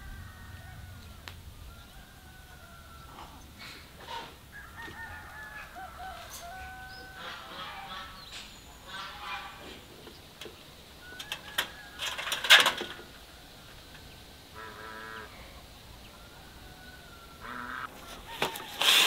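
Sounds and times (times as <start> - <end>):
rooster and crow calling: 0.0 - 8.3, 11.0 - 12.7, 14.5 - 19.0.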